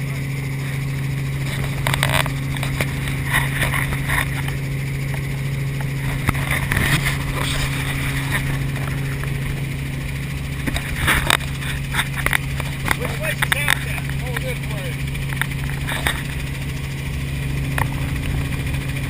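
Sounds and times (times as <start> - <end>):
helicopter engine and rotor drone: 0.0 - 19.0.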